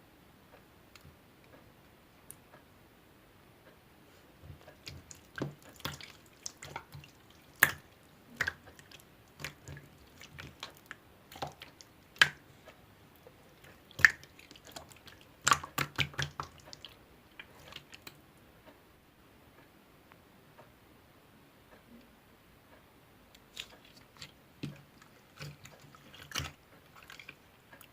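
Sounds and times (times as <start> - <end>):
slime squelching wet clicks: 4.5 - 18.2, 23.4 - 27.9.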